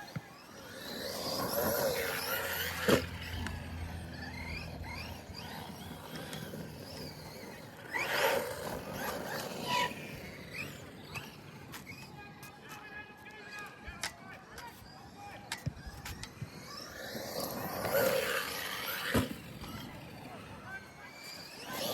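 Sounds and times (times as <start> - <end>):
rc truck motor whining: 0.0 - 21.9.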